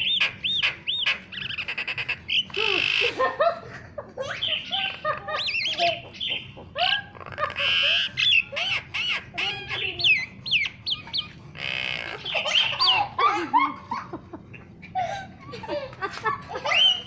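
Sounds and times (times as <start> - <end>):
bird harsh raspy screeches: 0.0 - 3.2, 7.2 - 13.1
birds whistling and chirping: 0.0 - 3.2, 4.2 - 13.8, 16.5 - 17.0.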